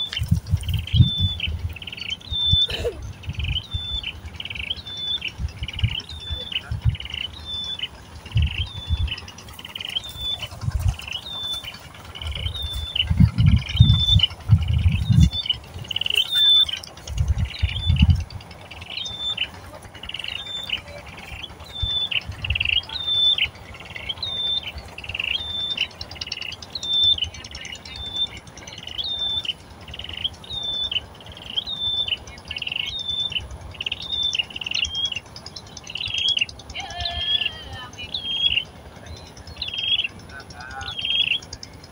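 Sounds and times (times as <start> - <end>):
low thumps and rumbling: 0.0 - 28.7
bird chirping: 0.0 - 41.9.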